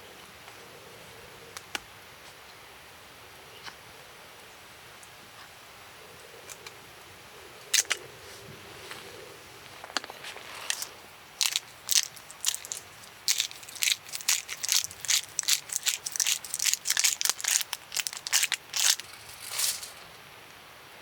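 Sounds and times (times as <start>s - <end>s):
crisp crunching: 9.7s - 20.1s.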